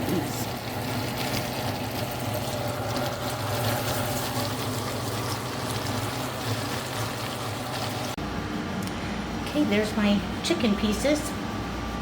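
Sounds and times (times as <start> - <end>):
chicken deep-frying in oil: 0.0 - 8.2.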